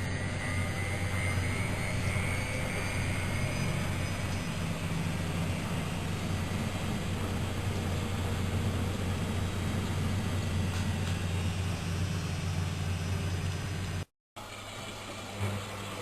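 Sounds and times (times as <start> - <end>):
washing machine running: 0.0 - 16.0.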